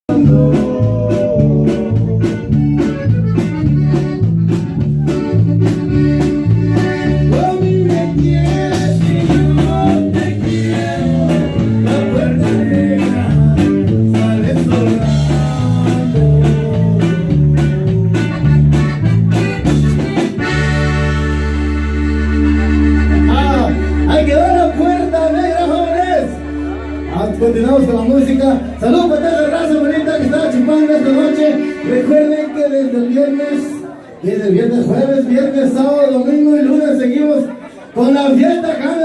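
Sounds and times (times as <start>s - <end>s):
band music with guitar and bass: 0.0s - 39.0s.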